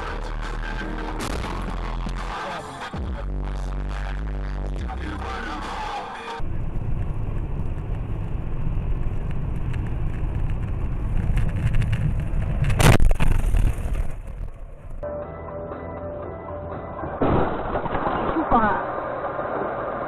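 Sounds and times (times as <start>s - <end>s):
car engine and road rumble: 0.0s - 15.1s, 16.6s - 20.0s
loud collision impact: 17.0s - 19.2s.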